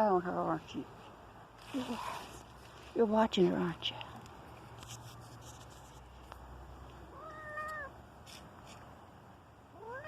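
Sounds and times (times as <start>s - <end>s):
cat meowing: 7.1s - 8.0s, 9.8s - 10.0s.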